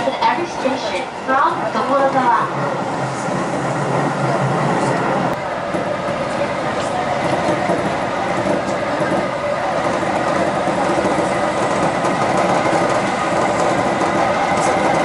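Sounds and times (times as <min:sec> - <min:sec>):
train drive whine: 0:00.0 - 0:15.0
train wheels rumbling on rail: 0:00.0 - 0:15.0.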